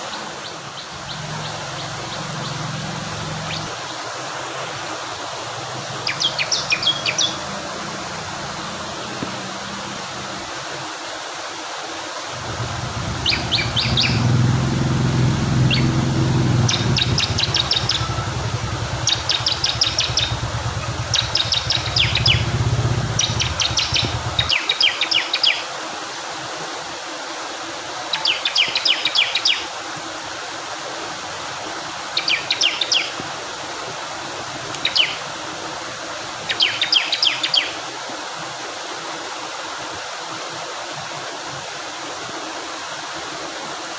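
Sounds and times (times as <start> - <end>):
flowing water: 0.0 - 43.9
bird singing rapid high notes: 1.0 - 3.7, 6.0 - 9.0, 12.4 - 24.7
low rumble: 12.4 - 24.5.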